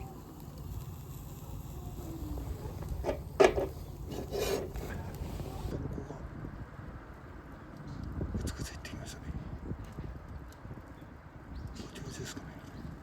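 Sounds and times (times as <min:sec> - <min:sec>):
oyster shells scraping on grill grate: 0:02.8 - 0:05.2.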